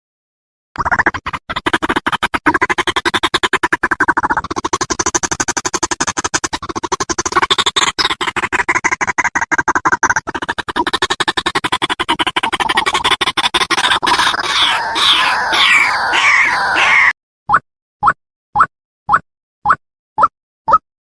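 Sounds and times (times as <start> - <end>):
bird calling harsh rapid pulses: 13.8 - 17.1.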